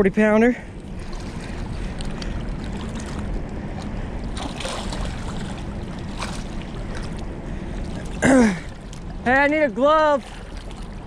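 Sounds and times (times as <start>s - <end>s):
low rumble: 0.0s - 11.0s
water noise: 0.0s - 11.0s
wind: 0.0s - 11.0s.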